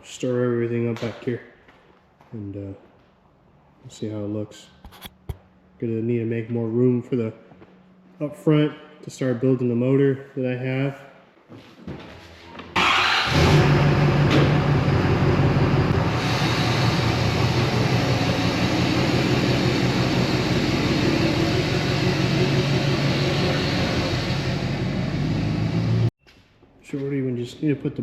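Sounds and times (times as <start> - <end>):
truck engine starting and idling: 12.7 - 26.1.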